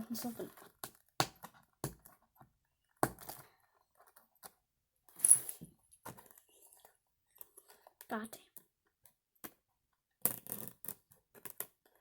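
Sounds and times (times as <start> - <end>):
clicks and taps on plastic: 0.6 - 3.4.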